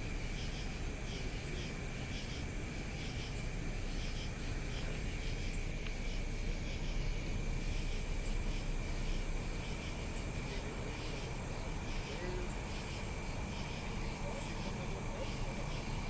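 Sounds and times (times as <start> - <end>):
vehicles idling rumble: 1.8 - 16.0.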